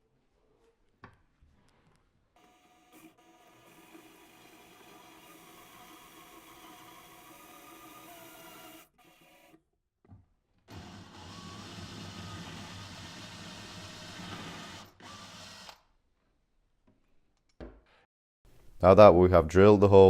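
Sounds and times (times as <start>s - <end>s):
power drill boring into wood: 2.4s - 9.6s, 10.7s - 15.8s.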